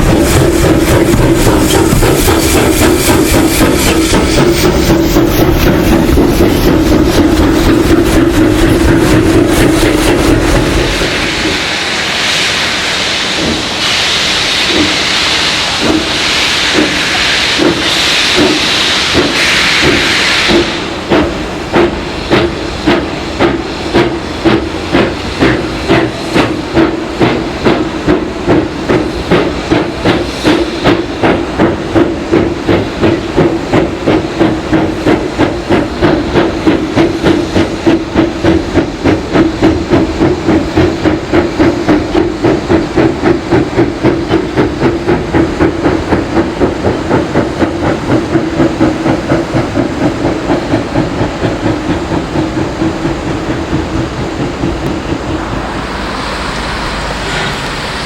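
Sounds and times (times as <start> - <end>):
hiss of escaping steam: 0.0 - 58.0
steam locomotive exhaust beats: 0.0 - 58.0.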